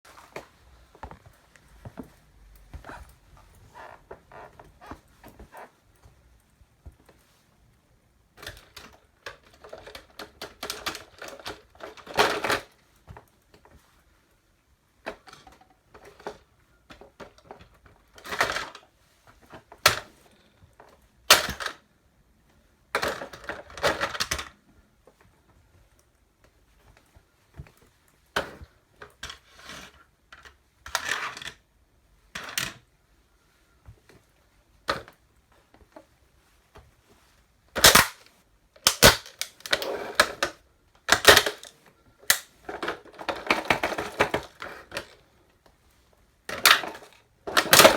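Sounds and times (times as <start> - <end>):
toy truck cracking and crunching: 37.8 - 41.7, 42.3 - 45.2, 46.6 - 47.9.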